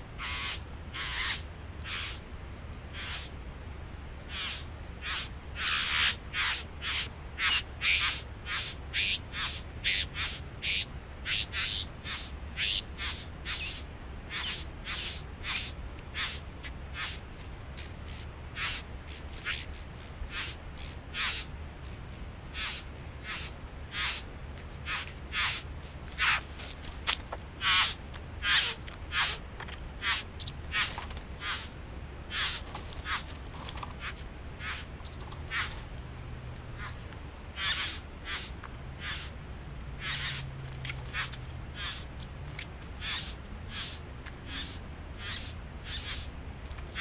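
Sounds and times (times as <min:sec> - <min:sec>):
bird giving harsh calls: 0:00.2 - 0:02.2, 0:02.9 - 0:03.3, 0:04.3 - 0:17.2, 0:17.8 - 0:21.5, 0:22.6 - 0:26.5, 0:27.6 - 0:29.4, 0:30.0 - 0:31.7, 0:32.3 - 0:35.8, 0:37.6 - 0:39.3, 0:40.0 - 0:42.0, 0:43.0 - 0:46.3.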